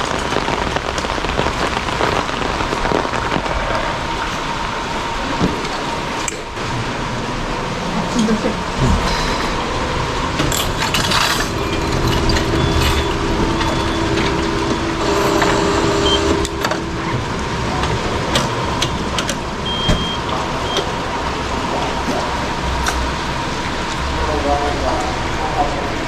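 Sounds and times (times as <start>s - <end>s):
vehicle engine hum: 0.0s - 26.0s
sharp clicks and jingling: 10.4s - 15.6s.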